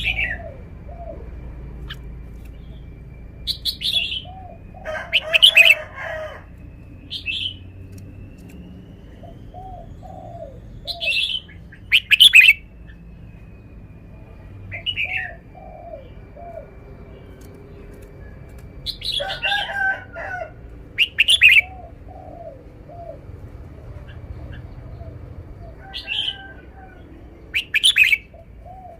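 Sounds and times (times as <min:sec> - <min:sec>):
faint steady high tone: 0:00.0 - 0:19.3
soft low chirping notes: 0:00.0 - 0:28.9.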